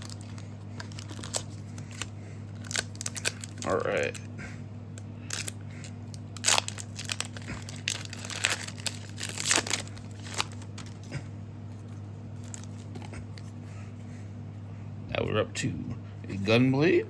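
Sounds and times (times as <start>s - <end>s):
plastic wrapper tearing and crinkling: 0.0s - 4.2s, 5.2s - 11.1s, 12.4s - 13.1s
steady low hum: 0.0s - 17.0s.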